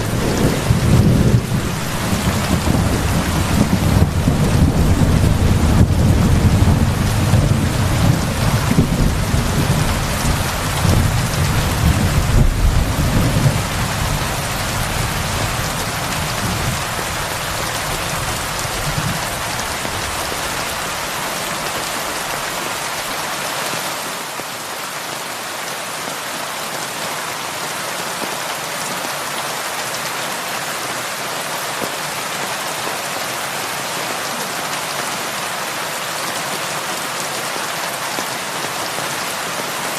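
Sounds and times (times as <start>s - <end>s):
rolling thunder: 0.0s - 17.2s
heavy rain on a roof: 0.0s - 39.9s.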